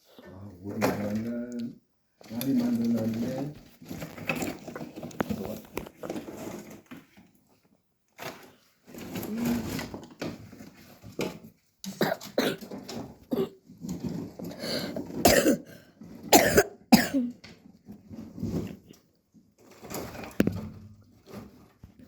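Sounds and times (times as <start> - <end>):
person clearing throat: 11.9 - 12.7, 13.3 - 13.6, 15.2 - 15.7, 16.3 - 17.4
person coughing: 12.0 - 12.7, 13.3 - 13.6, 15.2 - 15.7, 16.3 - 17.4.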